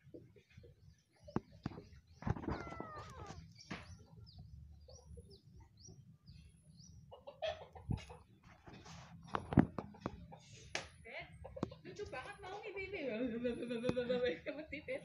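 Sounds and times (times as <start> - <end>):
bird chirping: 0.0 - 7.6
rustling: 1.8 - 3.5.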